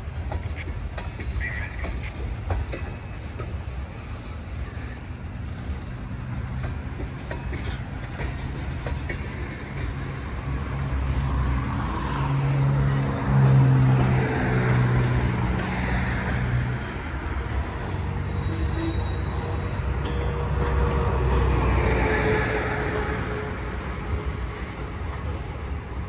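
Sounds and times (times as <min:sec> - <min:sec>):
train wheels rumbling on rail: 0:00.0 - 0:26.0
clicks of wheels: 0:06.6 - 0:10.2.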